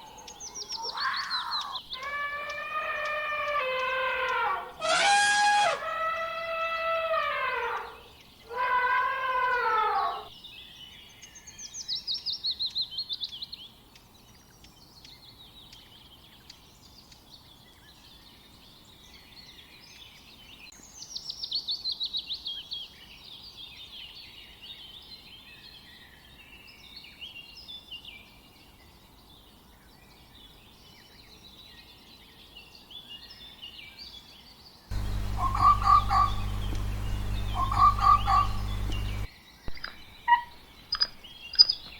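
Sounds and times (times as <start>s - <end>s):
swooping animal call: 0.8s - 10.3s, 34.9s - 39.3s
short repeated calls: 4.8s - 6.0s, 34.9s - 39.3s
loud steady low hum: 34.9s - 39.3s
songbird twittering: 34.9s - 41.9s.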